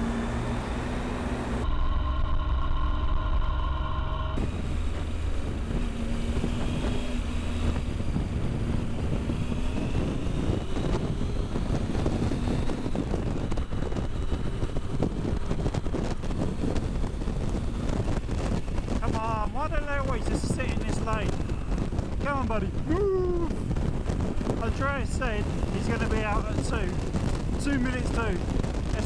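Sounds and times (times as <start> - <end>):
faint rising tone: 0.0 - 6.5
motorcycle engine running: 0.0 - 29.0
wind noise on microphone: 0.0 - 29.0.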